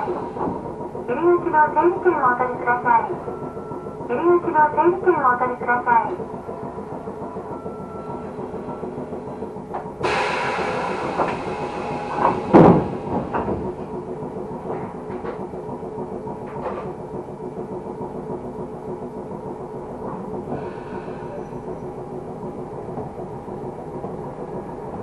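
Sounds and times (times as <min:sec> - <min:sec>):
train motor hum: 0:00.0 - 0:25.0
wheels clicking over rails: 0:00.0 - 0:25.0
hiss: 0:10.0 - 0:13.1.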